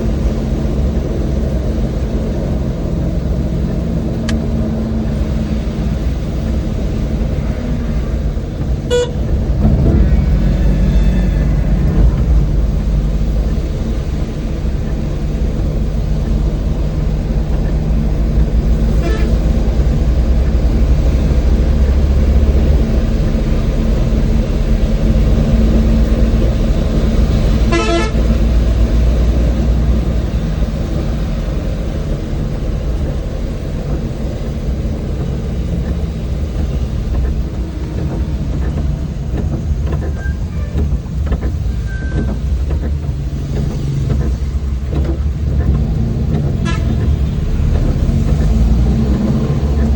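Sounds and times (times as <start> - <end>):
van engine and road noise: 0.0 - 49.9
vehicle horn toots: 8.8 - 9.3, 18.9 - 19.5, 27.6 - 28.3, 46.6 - 47.1.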